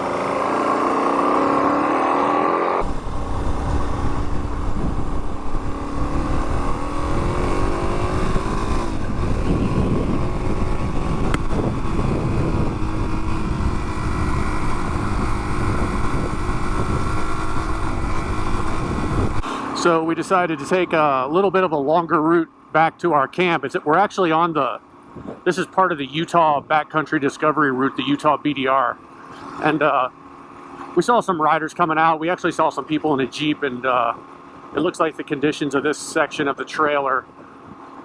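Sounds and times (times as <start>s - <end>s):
motorcycle engine revving: 0.0s - 22.8s, 23.4s - 38.0s
wind rumble on microphone: 2.8s - 19.5s, 25.1s - 25.5s.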